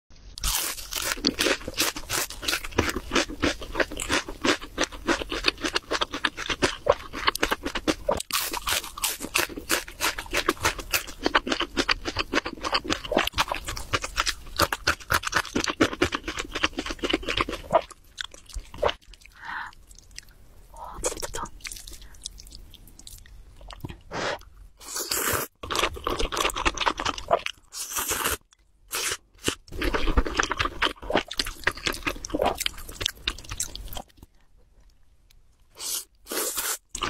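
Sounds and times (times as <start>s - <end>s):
crunching fried chicken: 0.4s - 18.9s, 25.1s - 34.1s.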